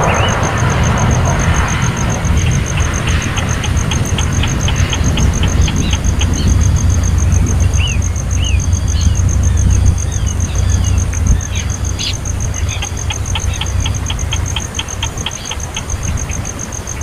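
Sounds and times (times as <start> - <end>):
heavy low rumble: 0.0 - 16.6
fast-pulsing high tone: 1.8 - 7.2, 12.4 - 16.1
baby bird chirping: 2.8 - 6.8, 12.0 - 16.2.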